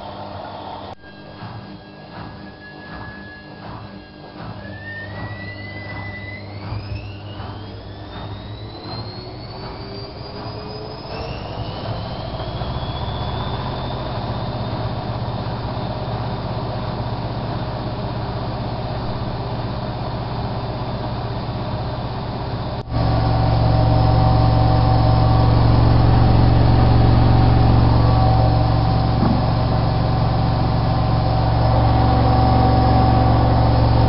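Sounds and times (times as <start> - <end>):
low drone of spinning drum: 0.0 - 34.0
washing machine motor whine: 0.0 - 34.0
washing machine drum thumping: 22.8 - 34.0.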